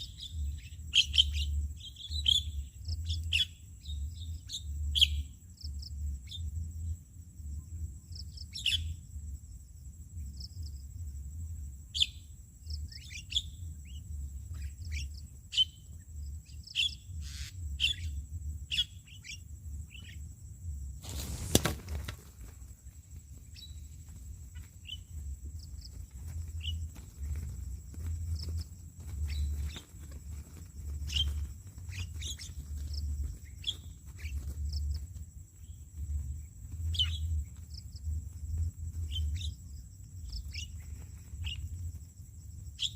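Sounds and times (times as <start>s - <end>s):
low steady rumble: 0.0s - 21.1s, 22.3s - 42.8s
birds chirping: 21.1s - 35.0s.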